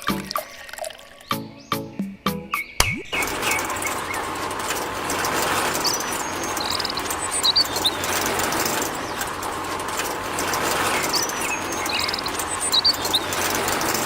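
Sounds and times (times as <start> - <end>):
high bird-like chirps: 0.0 - 4.4, 10.9 - 13.4.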